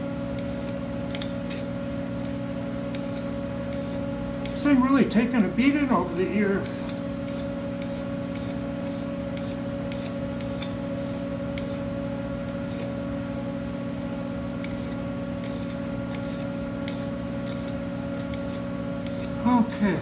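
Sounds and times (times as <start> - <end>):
machine hum: 0.0 - 20.0
file scraping metal: 2.9 - 4.0, 12.5 - 12.9, 14.6 - 19.6.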